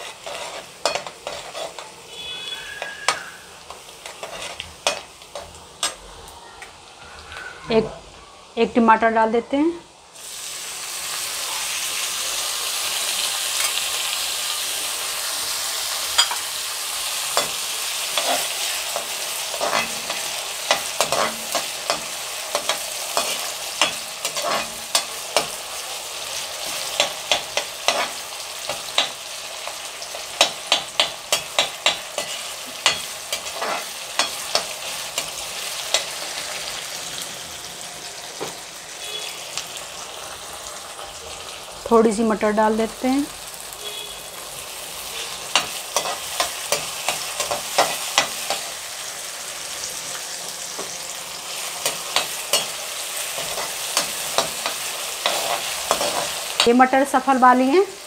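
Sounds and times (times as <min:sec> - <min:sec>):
skimmer scraping a pan: 0:00.0 - 0:05.0
tomato sizzling in hot oil: 0:00.0 - 0:07.9, 0:08.5 - 0:58.0.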